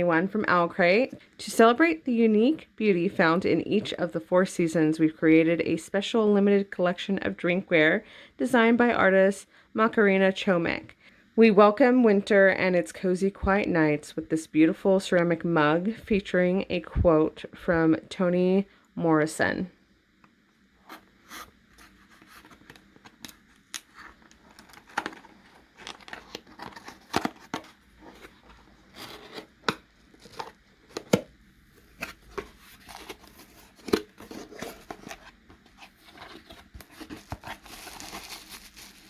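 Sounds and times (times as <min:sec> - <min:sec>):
packaging rustling: 0:20.9 - 0:39.0
packaging tearing: 0:23.1 - 0:31.1, 0:36.1 - 0:39.0.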